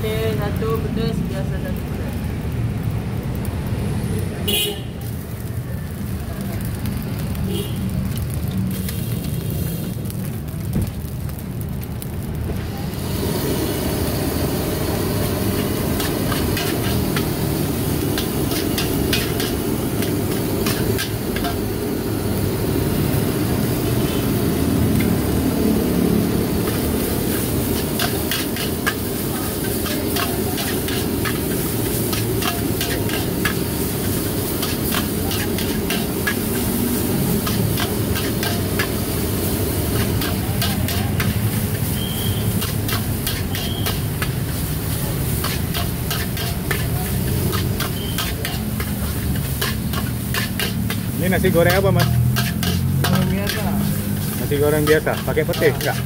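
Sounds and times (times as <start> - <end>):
rice stir-frying in a wok: 0.0 - 56.0
metal spatula clanking and scraping: 15.6 - 21.7, 26.7 - 39.1, 39.9 - 56.0.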